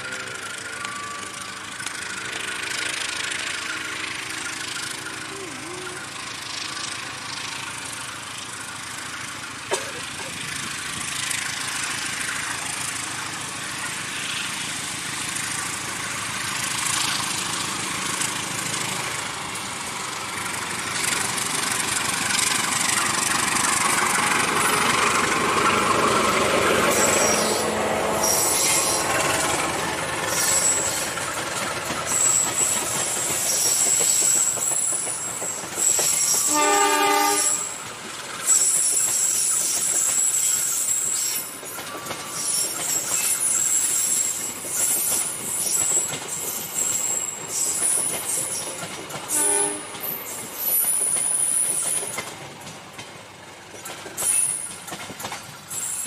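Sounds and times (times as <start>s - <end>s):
diesel locomotive running: 0.0s - 56.0s
wheel squeal: 26.8s - 52.2s, 54.2s - 54.8s, 55.7s - 56.0s
train horn blast: 36.4s - 37.8s, 49.3s - 50.0s.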